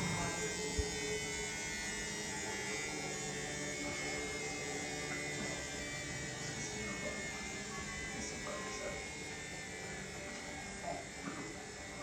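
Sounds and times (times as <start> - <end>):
washing machine running: 0.0 - 12.0.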